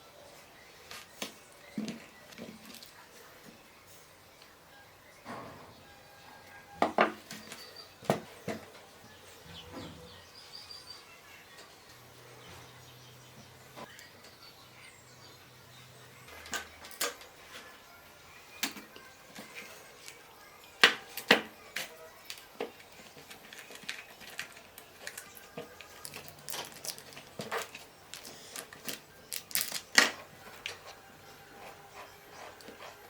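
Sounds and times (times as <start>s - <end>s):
small hard parts clicking and knocking: 20.8s - 30.9s.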